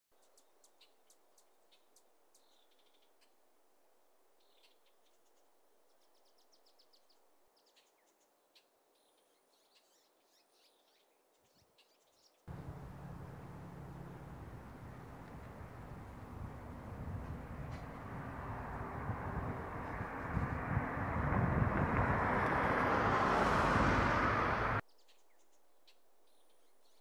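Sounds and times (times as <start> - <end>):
faint birds chirping: 0.1 - 20.7, 24.4 - 27.0
roadside noise: 12.5 - 24.8.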